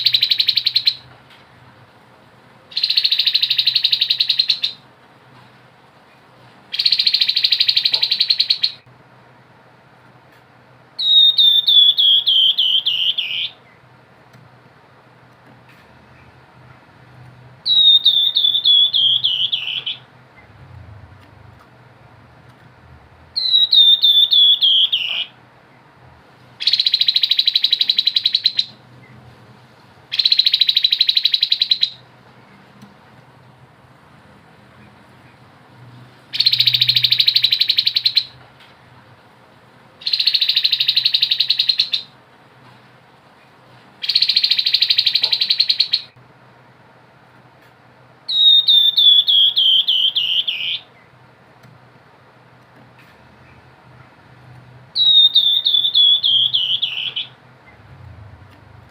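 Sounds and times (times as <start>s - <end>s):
bird whistling falling notes: 11.0s - 13.6s, 17.6s - 20.0s, 23.4s - 25.3s, 48.3s - 50.8s, 55.0s - 57.4s
bird buzzy rattling trills: 36.3s - 38.4s.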